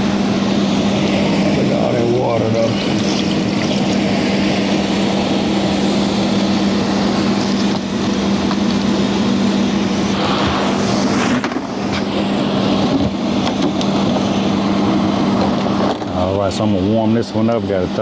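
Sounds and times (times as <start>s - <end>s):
hvac unit humming: 0.0s - 18.0s
rush of moving air: 2.8s - 15.8s.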